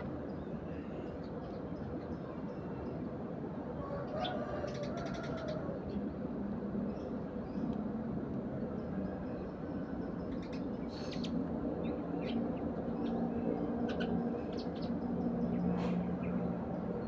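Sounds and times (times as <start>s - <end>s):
sparrows chirping: 8.7s - 17.0s.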